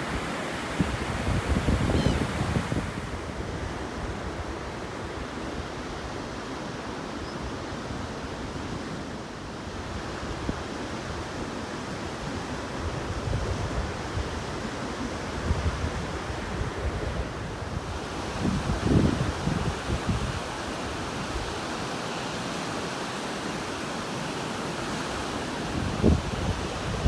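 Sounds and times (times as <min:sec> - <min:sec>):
wind rumbling on microphone: 0:00.0 - 0:05.1, 0:12.8 - 0:21.6, 0:25.7 - 0:27.0
ocean surf washing on shore: 0:00.0 - 0:27.0.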